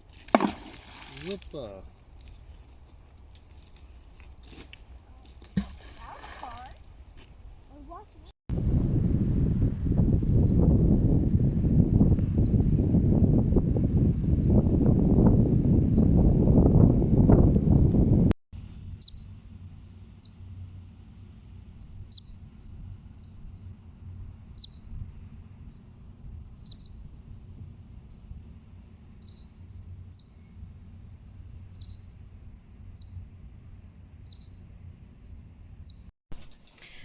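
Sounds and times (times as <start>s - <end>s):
small bird chirping: 19.0s - 19.4s, 20.2s - 20.6s, 21.8s - 23.8s, 24.4s - 25.0s, 26.5s - 27.4s, 28.0s - 30.6s, 31.2s - 32.3s, 32.9s - 36.1s.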